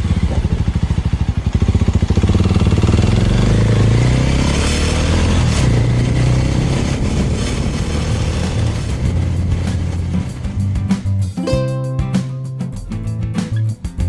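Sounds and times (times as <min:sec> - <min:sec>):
motorcycle engine accelerating: 0:00.0 - 0:10.7.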